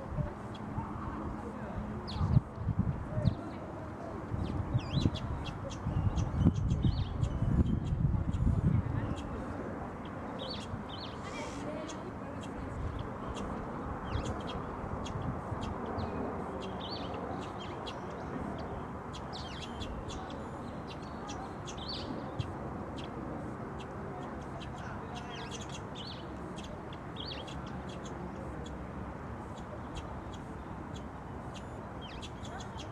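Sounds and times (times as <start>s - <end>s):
low background noise: 0.0s - 32.9s
small birds chirping: 0.2s - 32.9s.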